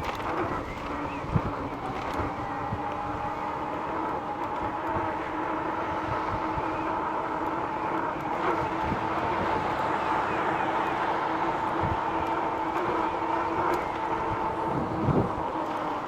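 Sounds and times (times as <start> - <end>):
electric bike motor whine: 0.0 - 16.0
rushing wind: 13.6 - 15.6.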